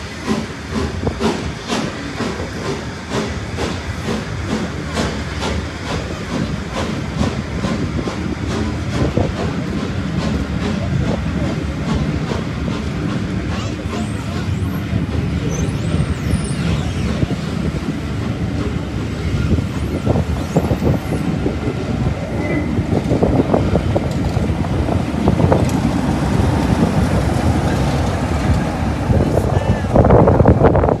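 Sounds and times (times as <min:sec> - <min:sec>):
train rumble: 0:00.0 - 0:31.0.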